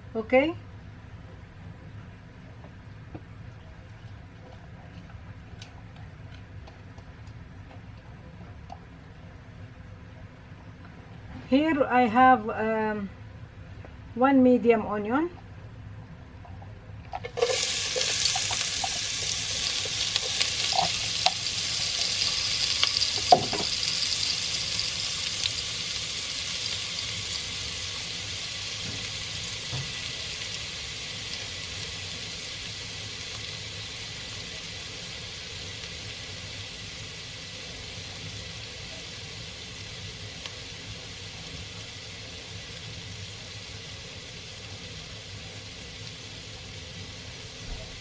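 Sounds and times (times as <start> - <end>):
stirring clicks: 17.2 - 23.7
onion sizzling in hot oil: 17.2 - 48.0.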